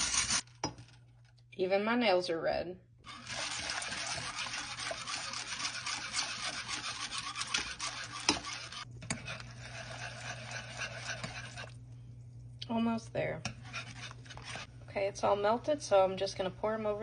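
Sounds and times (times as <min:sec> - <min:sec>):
spoon stirring and scraping saucepan: 0:03.0 - 0:11.8, 0:13.4 - 0:14.7.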